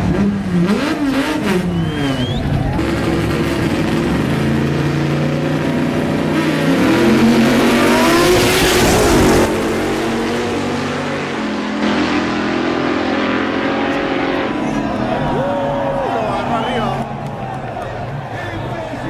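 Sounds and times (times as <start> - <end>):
car engines revving: 0.0 - 19.0
steady engine drone: 0.0 - 19.0
car passing at speed: 6.4 - 17.8.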